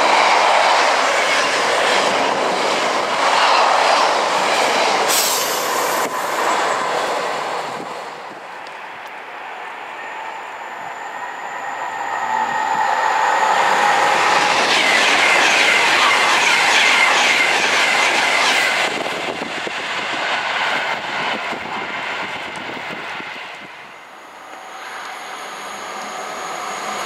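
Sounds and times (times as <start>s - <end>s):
train passing at speed: 0.0s - 27.0s.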